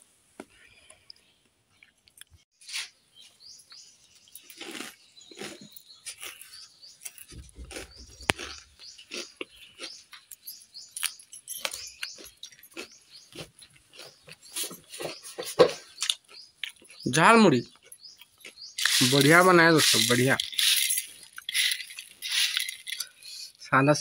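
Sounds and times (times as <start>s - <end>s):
crisp chewing crunches: 4.2s - 23.2s.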